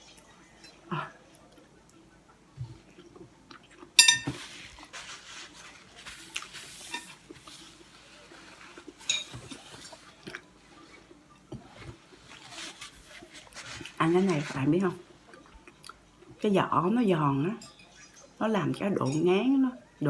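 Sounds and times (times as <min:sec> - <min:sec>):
crunchy chewing of fried crust: 0:02.7 - 0:16.3
sharp ringing clink: 0:04.0 - 0:04.3.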